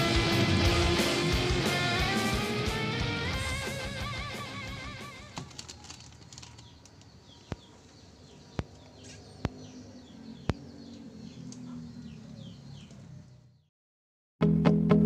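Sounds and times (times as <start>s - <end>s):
small birds chirping: 3.5s - 13.7s
sharp clicks: 5.4s - 7.7s.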